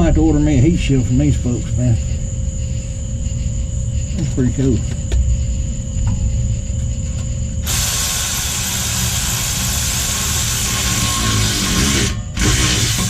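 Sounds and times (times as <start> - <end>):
low steady rumble: 0.0 - 13.0
compressed air hissing: 7.6 - 13.0.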